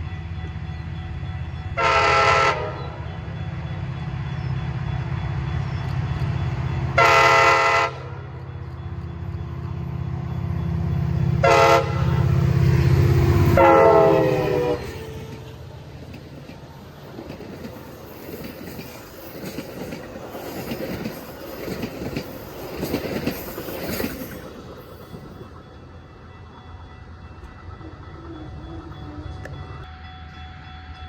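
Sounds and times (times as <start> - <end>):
locomotive engine rumble: 0.3 - 30.7
train horn blasts: 1.8 - 3.2, 6.9 - 8.3, 11.3 - 12.5, 13.2 - 15.6
train wheels clicking over rail joints: 14.4 - 26.0.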